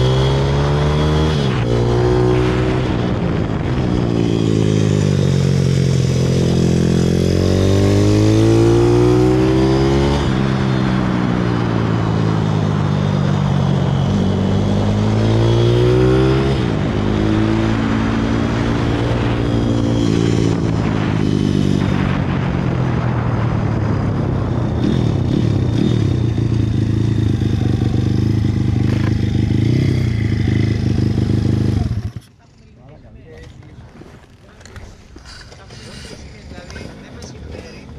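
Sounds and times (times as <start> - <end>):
pit bike engine revving: 0.0 - 23.0, 24.4 - 32.4.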